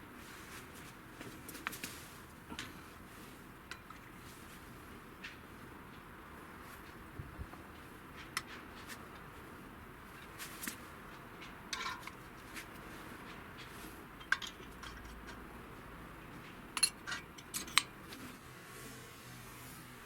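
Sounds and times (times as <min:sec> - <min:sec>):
small metal parts clinking: 0:11.7 - 0:12.2, 0:14.2 - 0:15.4, 0:16.8 - 0:17.9.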